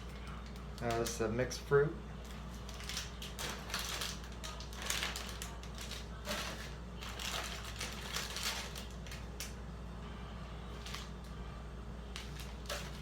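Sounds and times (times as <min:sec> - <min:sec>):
plastic wrappers crinkling: 0:00.0 - 0:01.6, 0:02.2 - 0:09.6, 0:10.7 - 0:11.4, 0:12.1 - 0:13.0.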